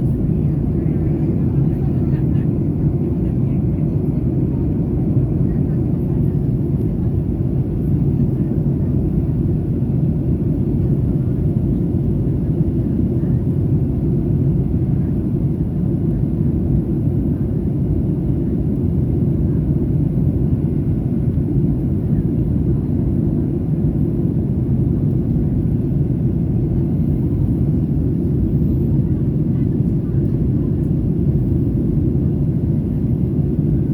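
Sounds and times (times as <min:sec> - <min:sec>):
airplane cabin engine rumble: 0:00.0 - 0:33.9.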